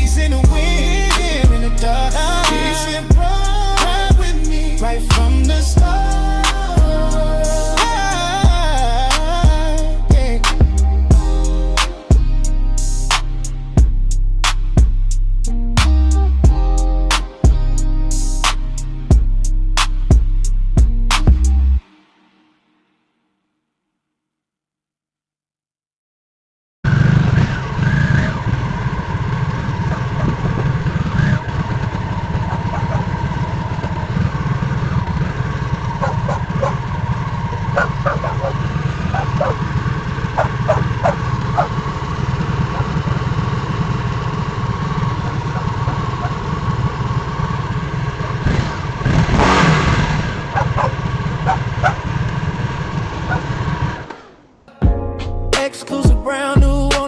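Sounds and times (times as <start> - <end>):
motorcycle engine throbbing: 0.0 - 21.8, 26.9 - 55.1.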